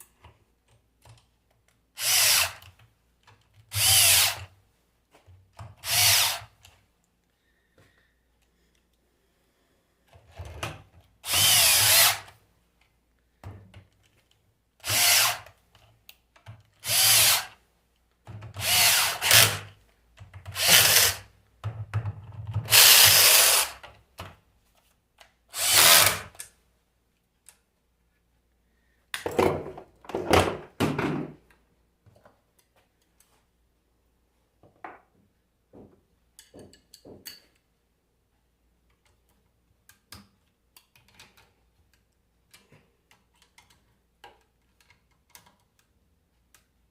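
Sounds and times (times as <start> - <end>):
power drill running in bursts: 16.8 - 17.5, 18.6 - 19.6, 20.6 - 21.2, 22.7 - 23.8, 25.6 - 26.3.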